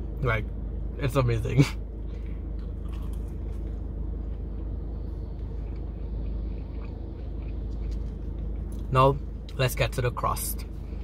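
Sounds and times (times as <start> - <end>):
car engine idling: 0.0 - 11.0
soft chewing clicks: 2.1 - 9.6.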